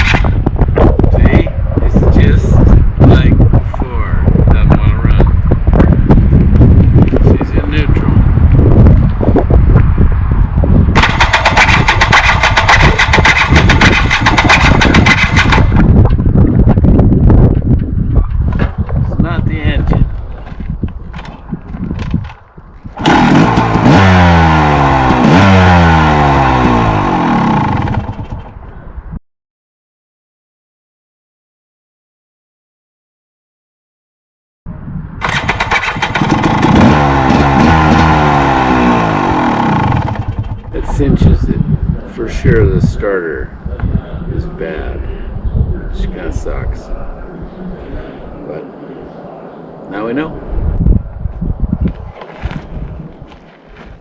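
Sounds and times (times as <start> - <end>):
electric starter cranking engine: 11.0 - 15.8, 23.0 - 28.3, 35.2 - 40.6
starter cranking: 11.0 - 15.9, 23.0 - 25.7.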